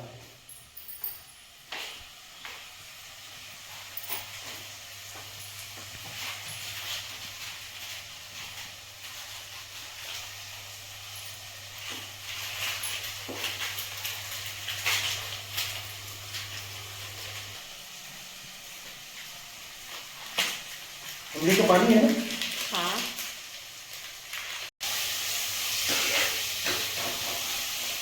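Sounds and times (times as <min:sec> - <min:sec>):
food frying in a pan: 0:01.4 - 0:28.0.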